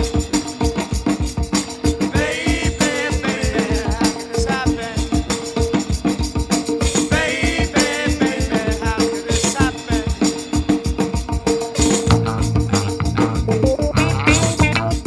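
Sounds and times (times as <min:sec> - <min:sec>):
rock band playing: 0:08.6 - 0:15.0.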